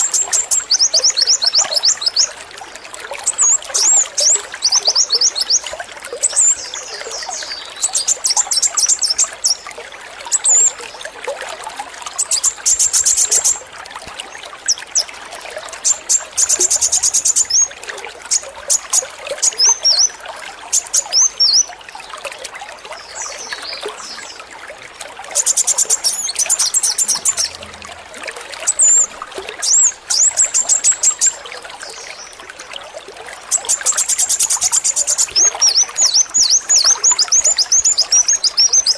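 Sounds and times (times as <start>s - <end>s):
water trickling: 0.0s - 38.9s
sunbird chirps and rattling trills: 15.8s - 20.1s, 25.4s - 32.3s.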